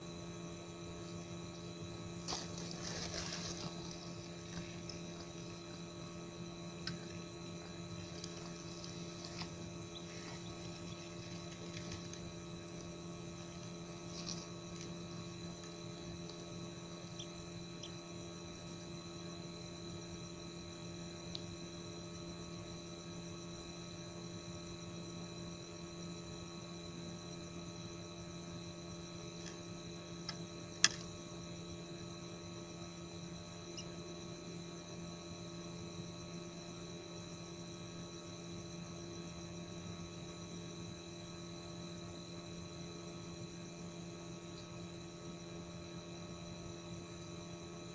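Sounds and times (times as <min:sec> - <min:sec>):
electrical hum: 0:00.0 - 0:47.9.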